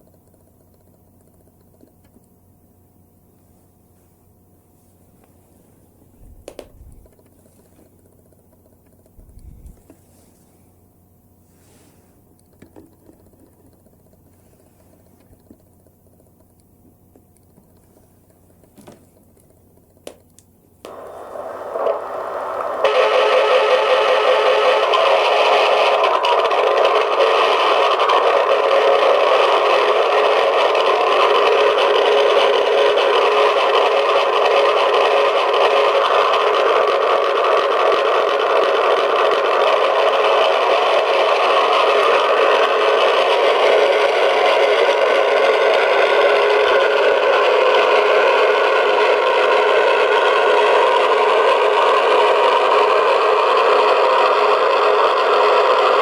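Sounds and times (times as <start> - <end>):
tinny aircraft engine from small speaker: 6.2 - 7.7, 9.1 - 10.6, 22.0 - 56.0.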